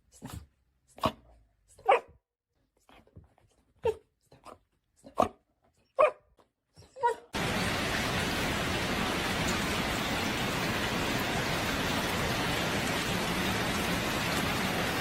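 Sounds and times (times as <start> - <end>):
steady rushing hiss: 7.4 - 15.0.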